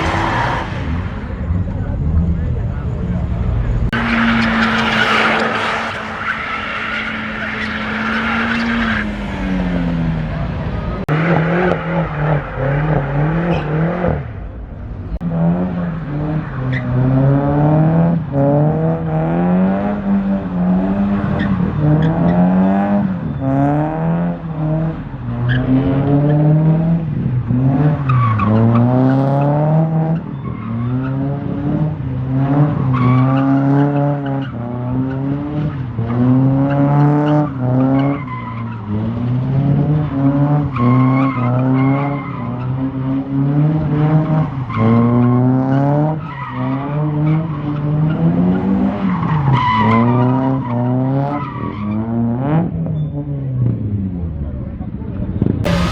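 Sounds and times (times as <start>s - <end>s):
tyres squealing and skidding: 0.0s - 14.4s, 15.4s - 26.8s, 27.4s - 53.5s, 55.6s - 55.9s
car engine revving: 0.0s - 52.8s, 55.3s - 55.9s.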